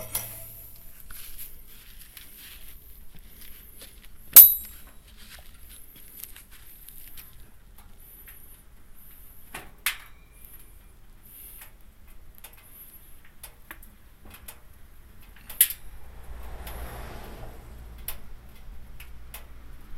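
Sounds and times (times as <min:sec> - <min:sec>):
low rumble: 0:15.6 - 0:19.0.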